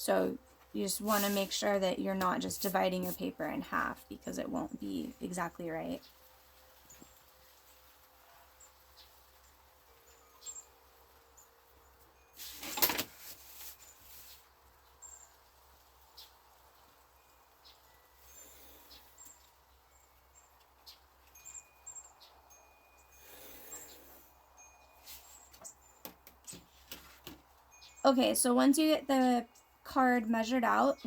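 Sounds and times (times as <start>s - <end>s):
birds chirping: 0.0s - 12.3s, 13.8s - 31.0s
paper rustle: 12.4s - 14.5s.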